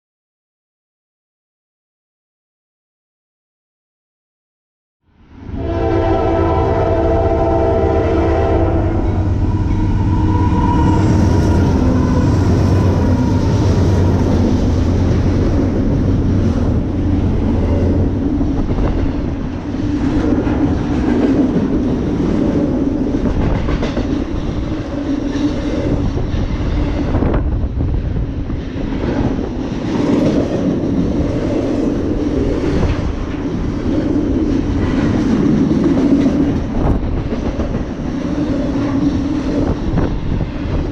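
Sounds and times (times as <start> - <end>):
diesel locomotive engines droning: 5.1 - 40.9
locomotive horn: 5.5 - 13.8
train wheels clattering on rails: 9.6 - 40.9.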